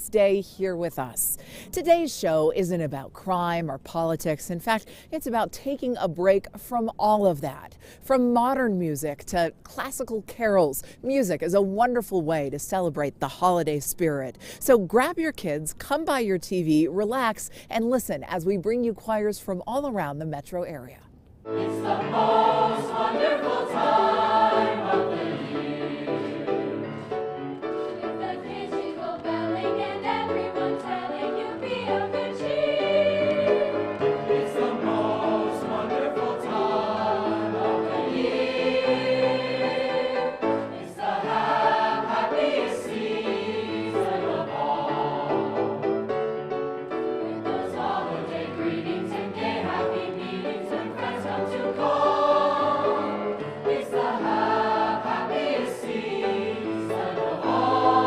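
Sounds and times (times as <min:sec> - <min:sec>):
choir singing: 0:21.5 - 0:46.2, 0:46.8 - 0:58.0.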